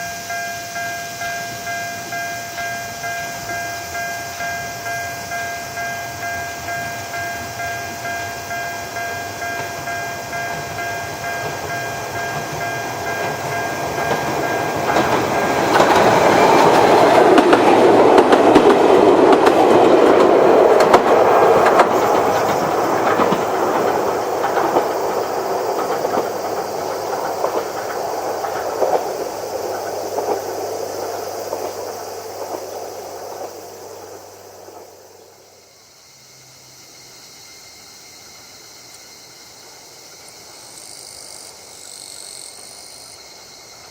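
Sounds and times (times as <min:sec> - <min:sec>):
level crossing warning bell: 0:00.0 - 0:17.6
wheels clicking over rail joints: 0:00.0 - 0:35.4
electric train passing: 0:00.0 - 0:43.9.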